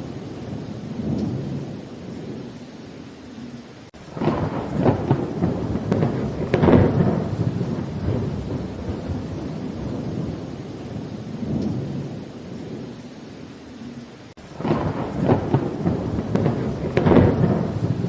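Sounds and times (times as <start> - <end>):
thunder rumbling and cracking: 0.0 - 2.5, 4.0 - 12.9, 14.4 - 18.0
rain: 0.0 - 18.0.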